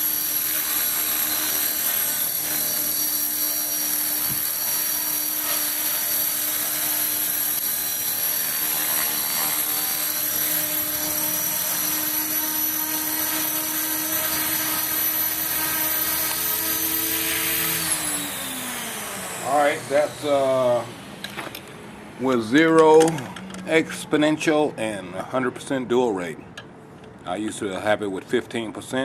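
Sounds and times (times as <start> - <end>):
model helicopter whine: 0.0 - 21.6.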